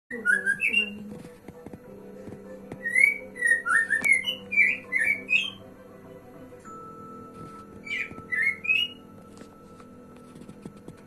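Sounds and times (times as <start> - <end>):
shama singing whistled notes: 0.1 - 1.2, 2.7 - 5.7, 6.7 - 9.2.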